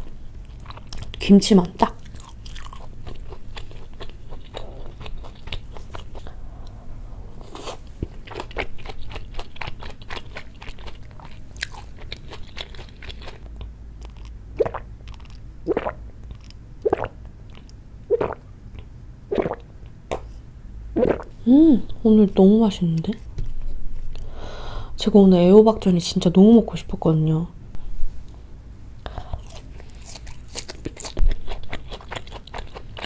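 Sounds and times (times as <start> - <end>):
chewing and crunching food: 0.0 - 6.8, 7.4 - 20.2, 29.1 - 33.0
gulps of drinking: 16.9 - 17.1, 18.1 - 18.4, 19.3 - 19.6.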